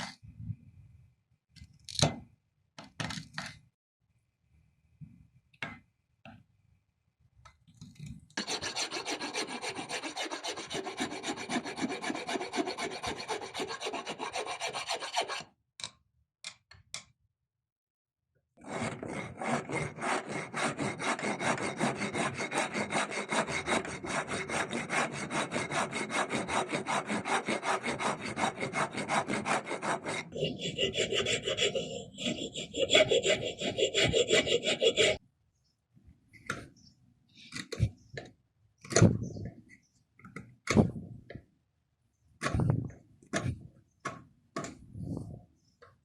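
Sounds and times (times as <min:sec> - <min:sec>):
hand tool cutting wood: 0:08.4 - 0:15.5, 0:18.7 - 0:35.2.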